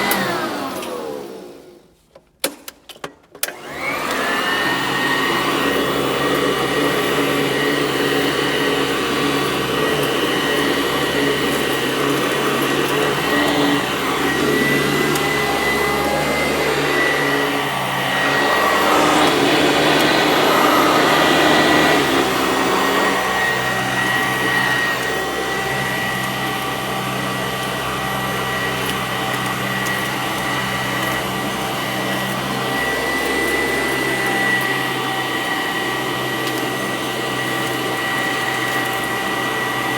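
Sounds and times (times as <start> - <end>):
vacuum cleaner running over carpet: 0.0 - 1.8, 3.5 - 39.9.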